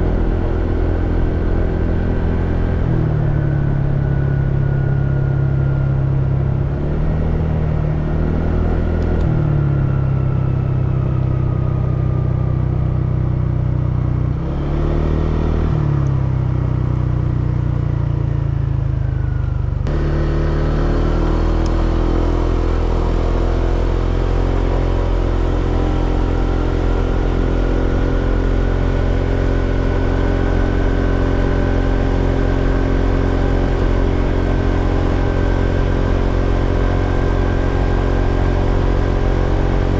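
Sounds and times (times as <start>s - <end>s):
scooter engine running: 15.8s - 39.9s.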